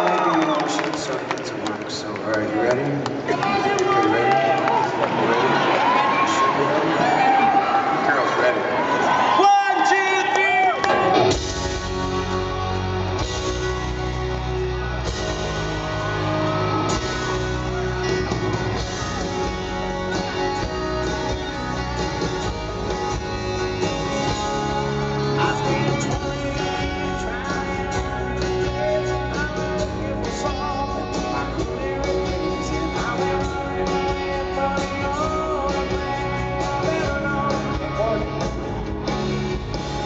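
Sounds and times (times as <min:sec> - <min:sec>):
live rock band playing: 0:09.4 - 0:40.0
person singing: 0:23.4 - 0:38.9.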